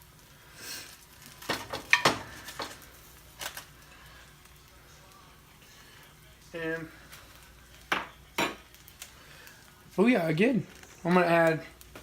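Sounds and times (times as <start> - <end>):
utensils clinking on plate: 1.5 - 2.8.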